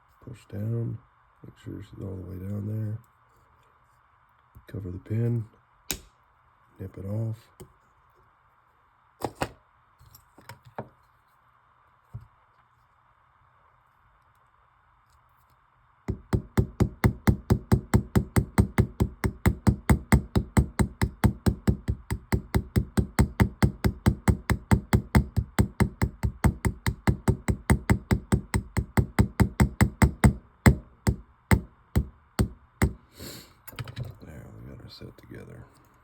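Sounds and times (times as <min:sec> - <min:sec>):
small hammer tapping metal: 0:16.1 - 0:33.0.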